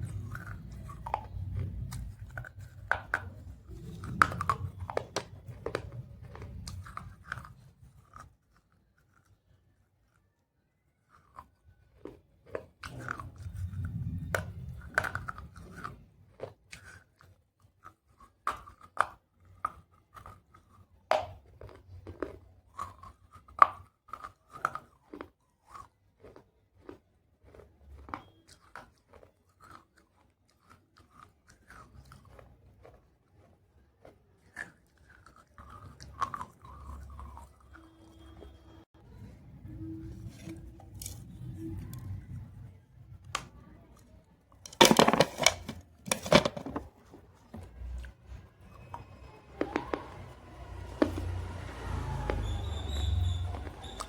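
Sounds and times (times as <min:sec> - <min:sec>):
biting crunches: 0:00.0 - 0:10.3, 0:10.9 - 0:38.5
low grinding chew: 0:00.0 - 0:54.0.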